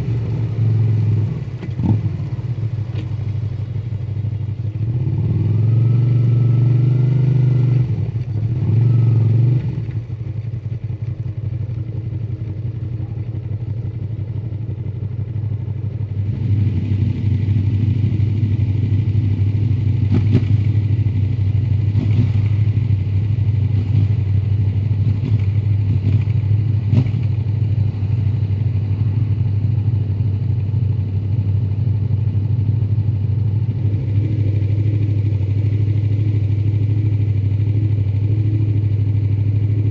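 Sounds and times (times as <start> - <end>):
motorcycle engine revving: 0.0 - 10.2, 16.1 - 28.2.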